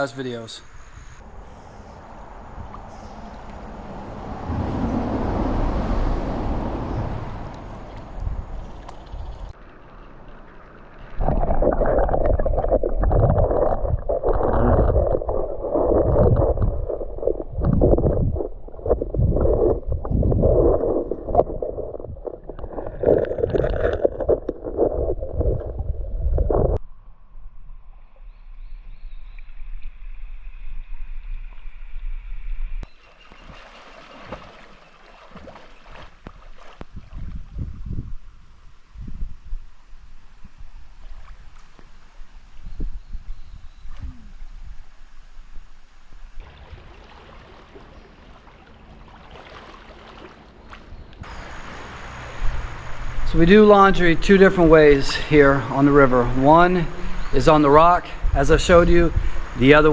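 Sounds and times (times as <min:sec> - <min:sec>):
quiet water sound: 0:00.0 - 0:59.9
water sloshing and splashing: 0:02.0 - 0:26.8, 0:32.9 - 0:37.6, 0:46.4 - 0:52.4.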